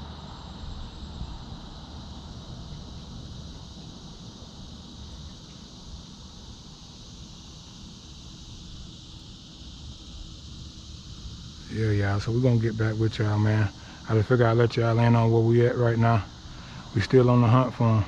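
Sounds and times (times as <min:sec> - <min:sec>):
wind rumble on microphone: 0:00.0 - 0:04.9
high insect drone: 0:00.0 - 0:18.0.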